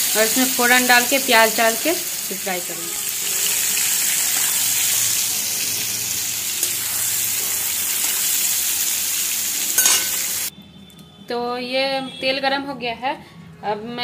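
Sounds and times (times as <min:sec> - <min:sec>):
mushrooms sizzling in hot oil: 0:00.0 - 0:10.5
spatula in pan: 0:03.3 - 0:05.2, 0:06.5 - 0:08.9, 0:09.8 - 0:10.5.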